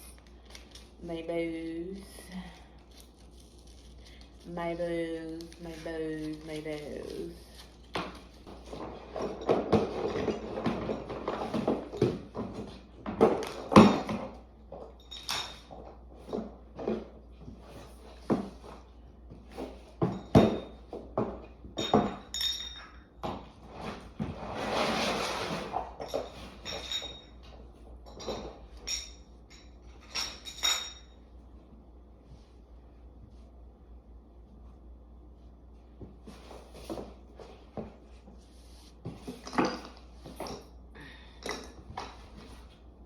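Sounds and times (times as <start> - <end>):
hard objects knocking and clinking: 20.0 - 23.5.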